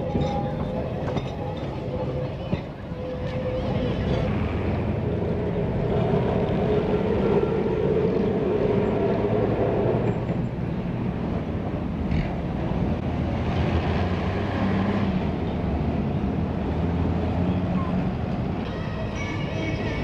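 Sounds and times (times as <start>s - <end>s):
electric tram hum and rumble: 0.0s - 20.0s.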